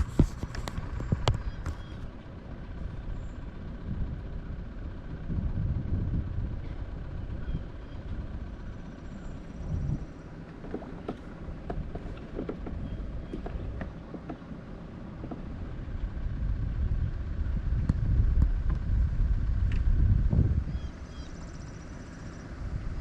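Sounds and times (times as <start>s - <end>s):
wind rumbling on microphone: 0.0s - 23.0s.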